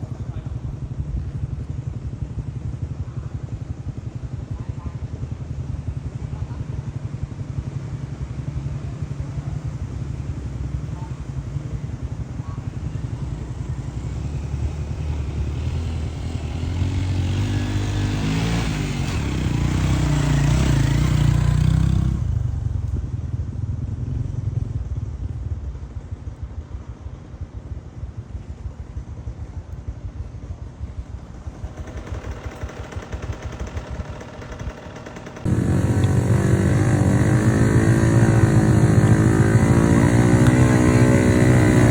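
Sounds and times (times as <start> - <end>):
motorcycle engine revving: 13.2 - 22.9, 31.7 - 41.9.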